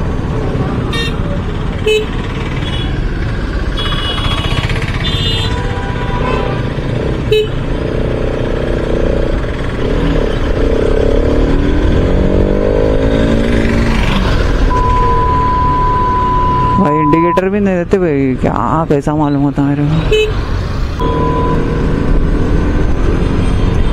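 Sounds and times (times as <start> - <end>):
car horn toots: 3.8 - 6.5.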